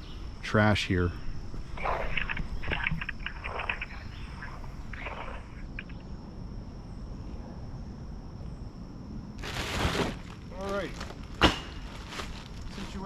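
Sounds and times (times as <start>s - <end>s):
low background rumble: 0.0s - 12.7s
insects droning: 0.0s - 13.0s.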